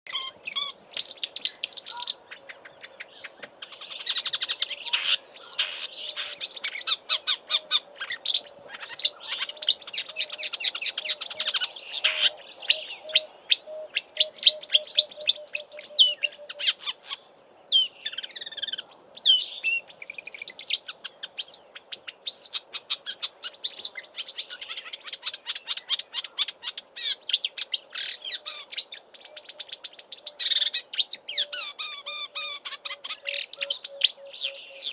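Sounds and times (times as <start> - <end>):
warbler singing: 0.1 - 34.9.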